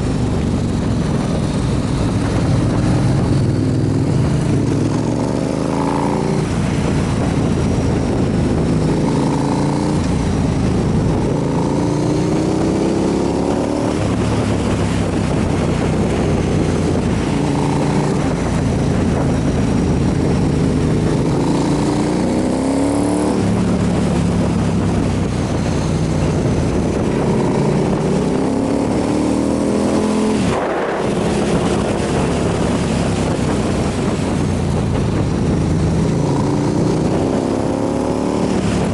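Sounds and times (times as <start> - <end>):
motorcycle engine shifting gears: 0.0 - 38.9
wind noise: 0.0 - 38.9.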